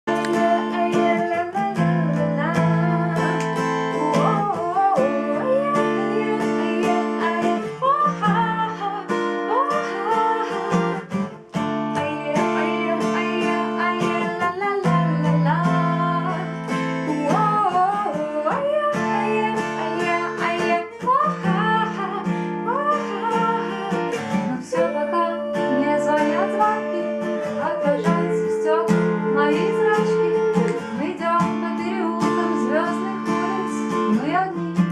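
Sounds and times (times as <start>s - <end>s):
acoustic guitar strumming: 0.0s - 34.9s
person singing: 0.0s - 34.9s.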